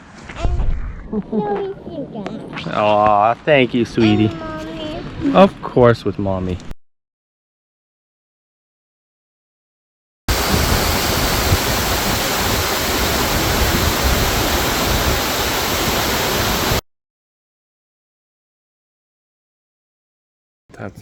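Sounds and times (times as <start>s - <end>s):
waterfall roaring: 10.3s - 16.8s.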